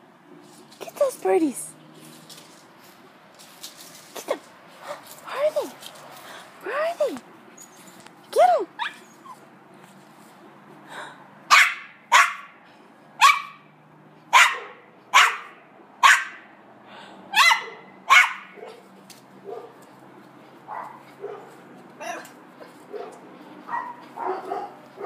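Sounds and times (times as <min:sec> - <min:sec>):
dog barking excitedly: 0:04.8 - 0:05.1, 0:11.5 - 0:12.6, 0:13.2 - 0:13.7, 0:14.3 - 0:16.5, 0:17.3 - 0:19.8, 0:20.6 - 0:22.2, 0:22.8 - 0:25.0.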